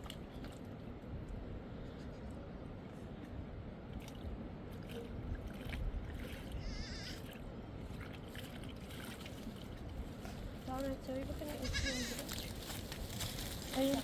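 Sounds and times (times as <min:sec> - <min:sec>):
low rumbling background noise: 0:00.0 - 0:14.0
sheep bleat: 0:06.6 - 0:07.2, 0:11.6 - 0:12.2.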